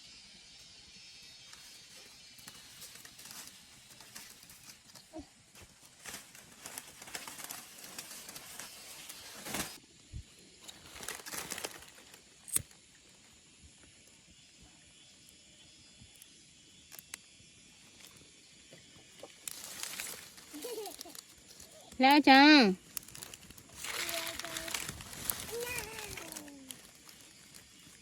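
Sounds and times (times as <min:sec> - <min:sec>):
rustling and crackling: 0:01.6 - 0:09.8, 0:10.6 - 0:12.3, 0:19.3 - 0:28.0.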